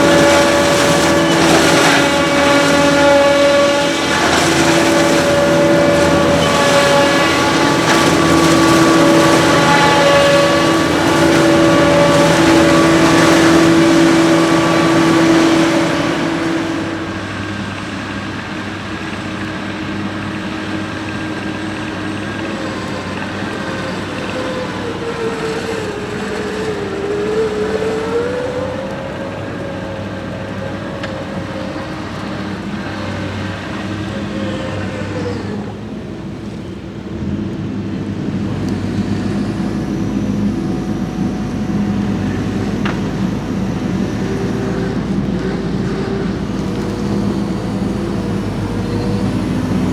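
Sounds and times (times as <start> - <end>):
wavering engine tone: 0.0 - 18.4, 38.2 - 49.9
diesel machinery running: 0.0 - 49.9.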